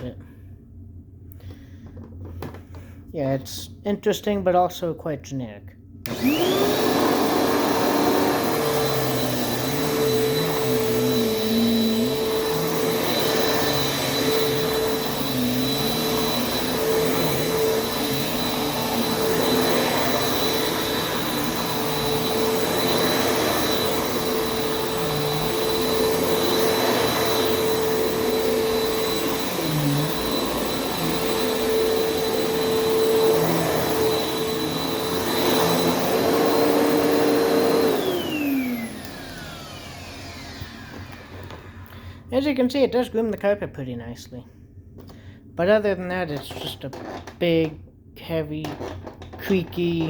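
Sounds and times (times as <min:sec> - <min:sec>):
upright vacuum cleaner running: 0:06.0 - 0:42.0.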